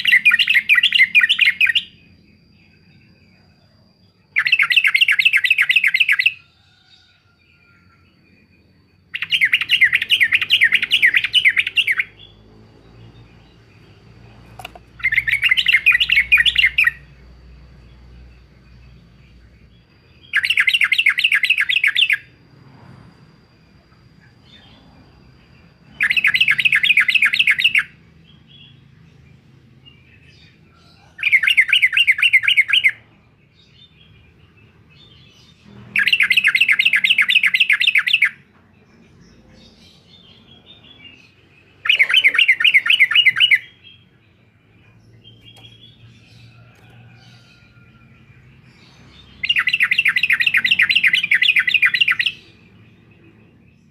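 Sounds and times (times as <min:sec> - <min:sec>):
bird singing trilled phrases: 0:00.0 - 0:06.5, 0:07.6 - 0:22.4, 0:23.9 - 0:29.3, 0:29.9 - 0:53.9
soft bird calls: 0:35.0 - 0:53.9.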